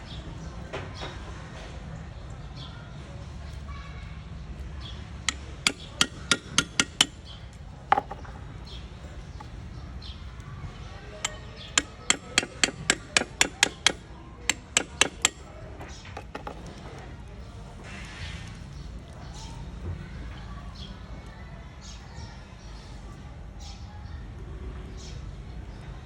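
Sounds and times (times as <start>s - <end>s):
sharp hammer taps: 5.3s - 7.2s, 7.9s - 8.4s, 11.2s - 16.8s.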